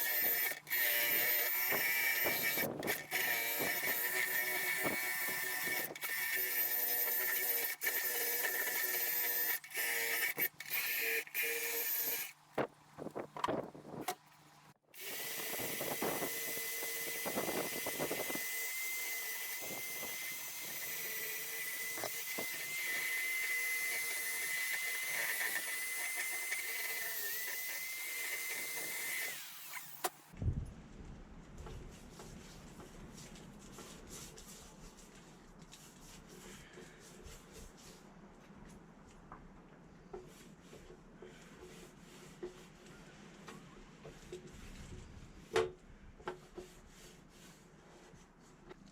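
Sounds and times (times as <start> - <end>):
power tool motor whining: 0.0 - 12.3, 15.0 - 30.3.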